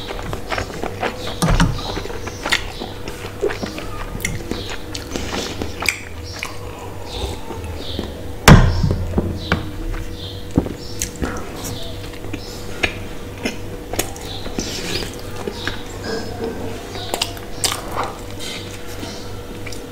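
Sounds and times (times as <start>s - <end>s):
chewing and mouth smacks: 0.0s - 8.2s, 9.7s - 19.9s
loud thump: 8.4s - 10.0s.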